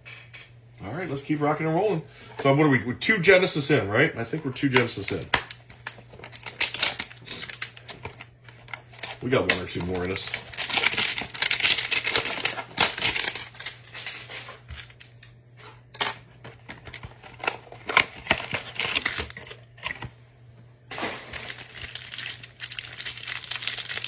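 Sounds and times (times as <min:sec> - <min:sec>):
cards being handled: 0:04.4 - 0:15.0
plastic packaging crinkling: 0:04.4 - 0:15.3, 0:15.9 - 0:20.1, 0:20.9 - 0:24.0.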